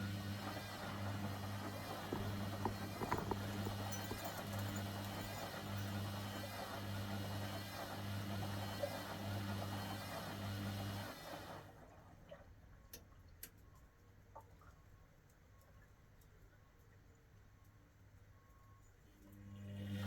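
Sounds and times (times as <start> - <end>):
washer-dryer humming: 0.0 - 12.3.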